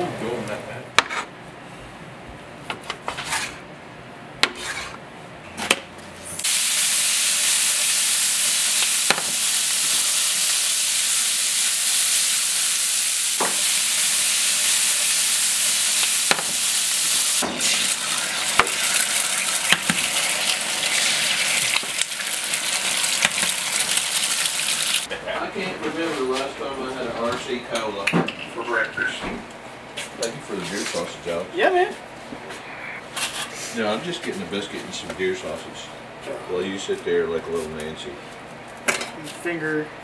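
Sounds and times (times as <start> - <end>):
food sizzling in a pan: 6.4 - 25.1.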